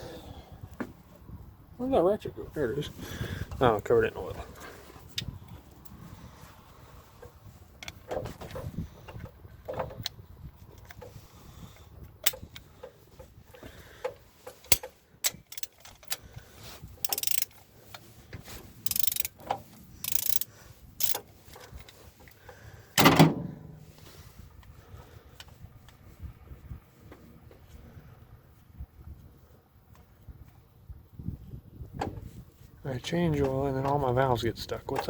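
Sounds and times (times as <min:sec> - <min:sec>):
metallic clinks of tools: 0:14.7 - 0:16.2, 0:17.0 - 0:17.6, 0:18.9 - 0:19.4, 0:20.0 - 0:21.2
ratchet wrench clicking: 0:14.7 - 0:16.2, 0:17.0 - 0:17.6, 0:18.8 - 0:19.4, 0:20.0 - 0:21.3
loud metal clank: 0:23.0 - 0:23.9.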